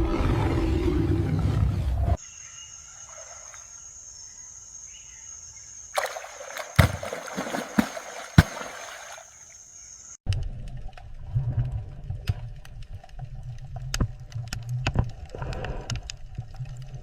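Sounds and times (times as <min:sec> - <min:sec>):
water splashing and sloshing: 0:02.7 - 0:04.2, 0:05.9 - 0:10.2.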